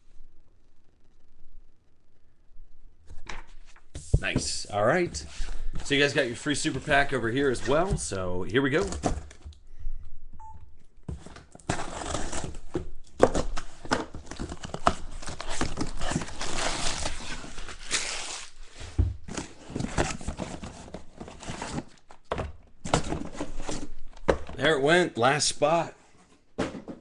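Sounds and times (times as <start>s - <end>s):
plastic wrapping crinkling: 14.2s - 18.7s.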